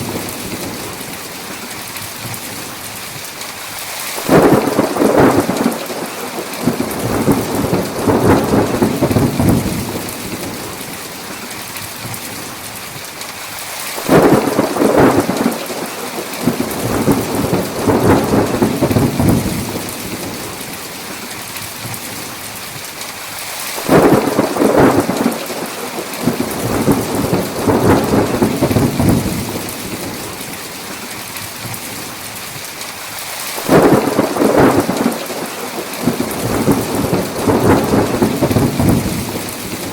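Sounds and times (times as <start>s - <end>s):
heavy rain: 0.0s - 39.9s
rolling thunder: 4.2s - 11.0s, 14.0s - 20.7s, 23.8s - 30.4s, 33.6s - 39.9s.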